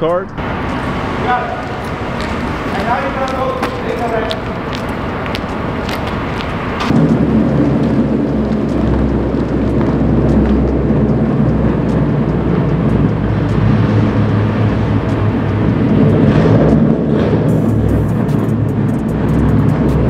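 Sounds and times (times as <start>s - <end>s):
car engine deep rumble: 0.0s - 20.0s.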